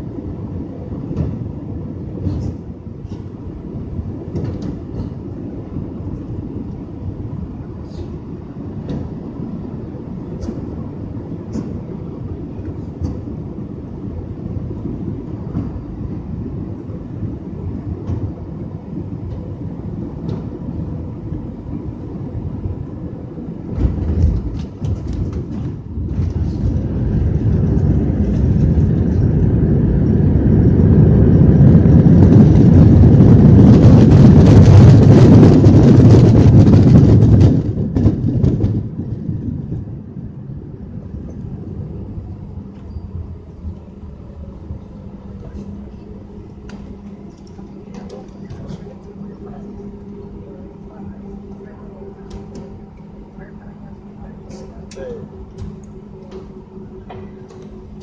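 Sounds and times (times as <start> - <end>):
aircraft cabin rumble: 0.0 - 58.0
reverse thrust engine roar: 0.0 - 58.0.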